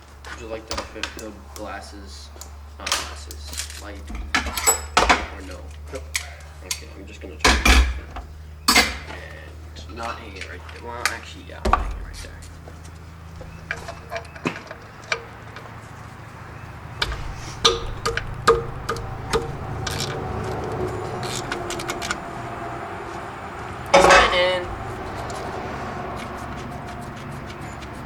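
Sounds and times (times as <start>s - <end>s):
steady low hum: 0.0s - 28.0s
metal tools clinking and tapping: 2.8s - 9.4s, 13.4s - 15.8s, 23.9s - 25.5s.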